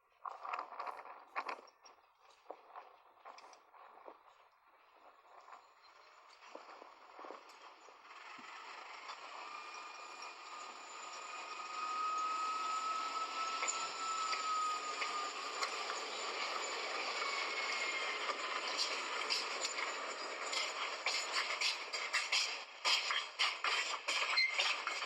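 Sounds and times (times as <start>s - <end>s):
high whine of train wheels: 5.4s - 25.0s
train rumbling on track: 5.8s - 25.0s.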